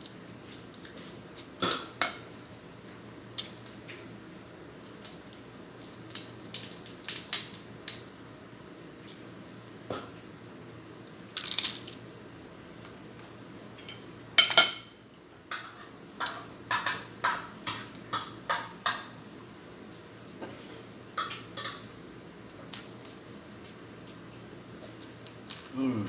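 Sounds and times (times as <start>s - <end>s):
cutlery clinking on dishes: 13.8s - 19.2s, 21.2s - 21.9s.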